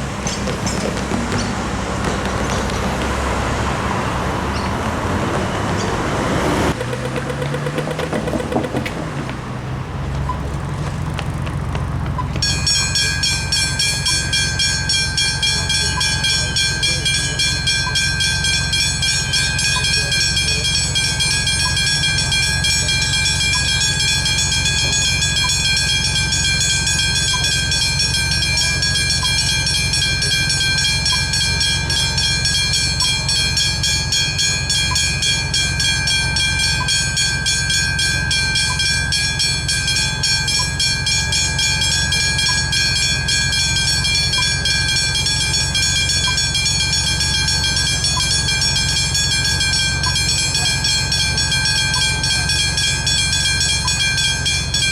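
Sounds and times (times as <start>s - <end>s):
level crossing bells ringing: 11.6s - 54.9s.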